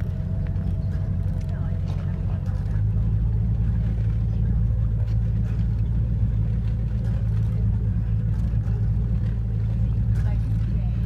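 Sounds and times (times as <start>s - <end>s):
motorboat engine droning: 0.0s - 11.0s.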